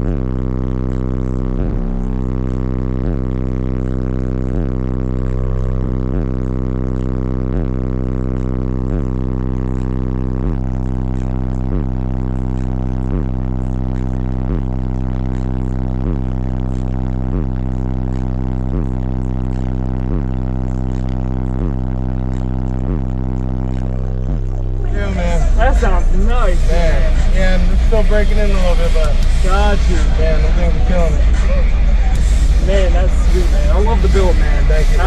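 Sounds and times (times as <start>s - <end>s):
deep bass from subwoofers: 0.0s - 35.0s
short bass hits: 24.1s - 35.0s.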